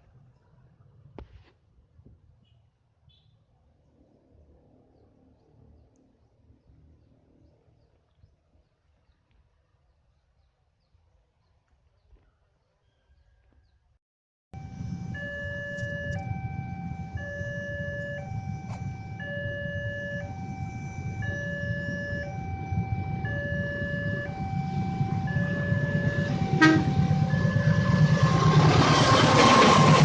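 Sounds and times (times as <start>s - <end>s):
approaching train rumble: 14.6s - 30.0s
level-crossing alarm two tones: 14.6s - 30.0s.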